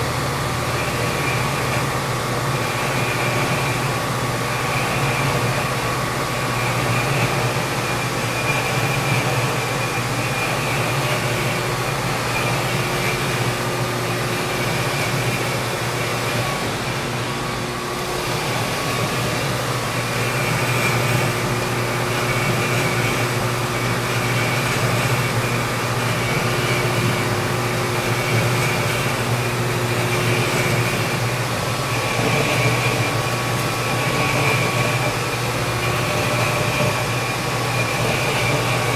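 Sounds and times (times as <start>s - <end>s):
lathe running: 0.0s - 38.9s
boring tool cutting tube: 17.9s - 38.9s.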